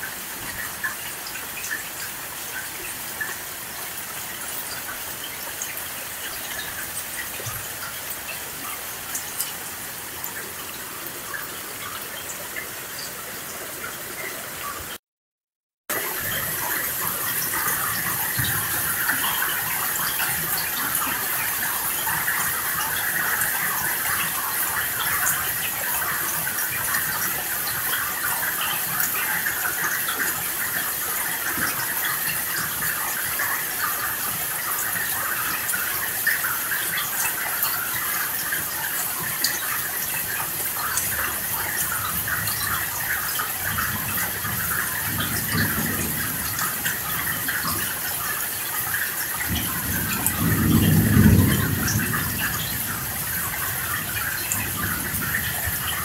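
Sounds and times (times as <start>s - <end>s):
heavy rain: 0.0s - 15.0s, 15.9s - 56.0s
distant thunder rumble: 49.4s - 56.0s.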